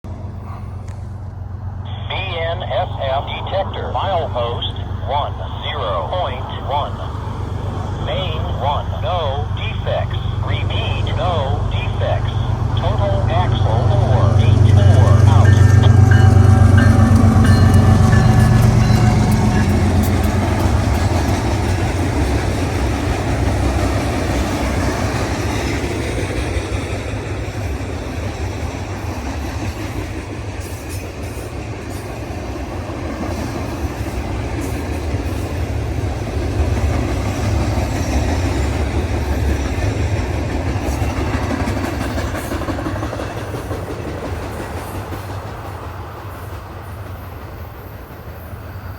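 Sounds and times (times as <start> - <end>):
freight train passing: 0.1 - 48.9
wheels clacking on rails: 2.9 - 48.9.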